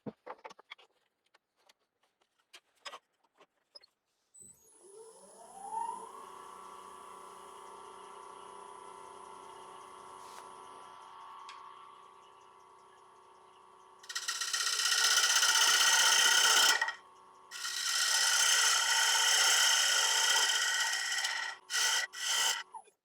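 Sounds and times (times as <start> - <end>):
turning tool cutting wood: 14.0 - 22.8
wood lathe humming: 14.0 - 22.8.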